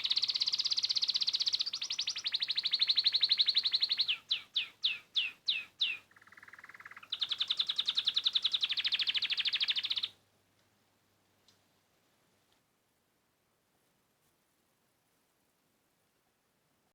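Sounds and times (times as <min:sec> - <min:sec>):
songbird singing with trills: 0:00.0 - 0:10.2.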